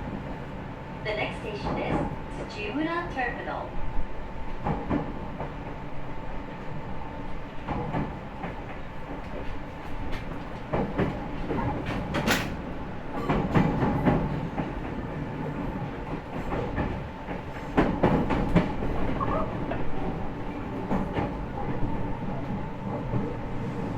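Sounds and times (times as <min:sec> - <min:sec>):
train running noise: 0:00.0 - 0:23.9.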